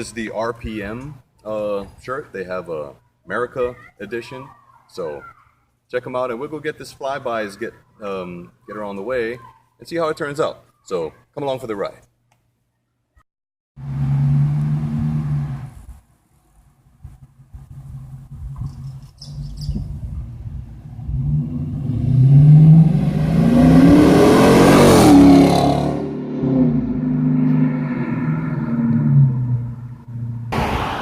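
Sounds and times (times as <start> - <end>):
car exhaust accelerating past: 13.8 - 15.9, 20.2 - 31.0.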